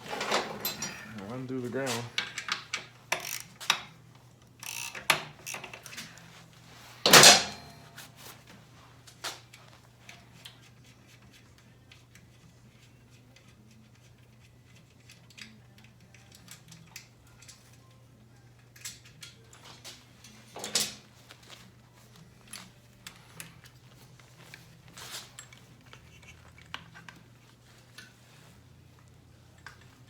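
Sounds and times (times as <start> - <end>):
tools clicking and rustling: 0.0 - 6.2, 7.0 - 8.0, 18.6 - 30.0.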